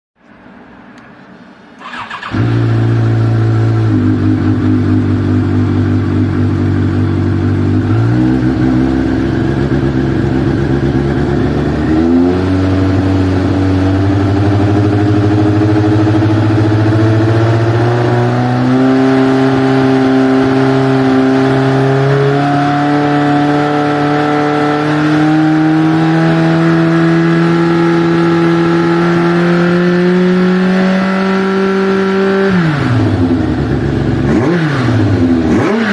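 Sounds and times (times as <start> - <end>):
motorcycle engine revving: 1.8 - 35.9.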